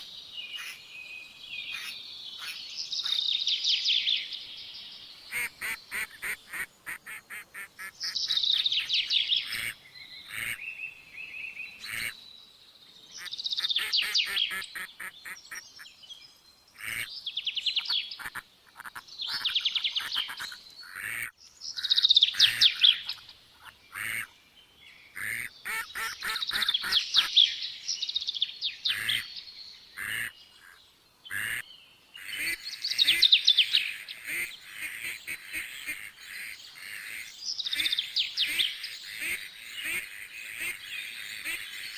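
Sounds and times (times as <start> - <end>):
birds chattering calls: 0.0 - 0.9, 1.5 - 4.2, 5.1 - 12.3, 13.0 - 16.0, 16.6 - 41.9.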